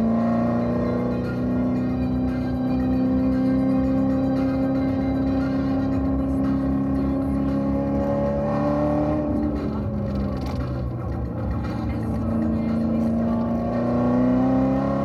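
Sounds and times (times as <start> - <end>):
car engine pulling: 3.4 - 15.0.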